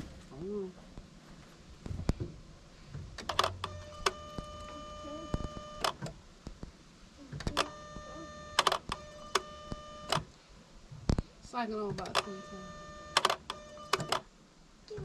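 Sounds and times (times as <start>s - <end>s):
fuel pump humming: 1.9s - 6.2s.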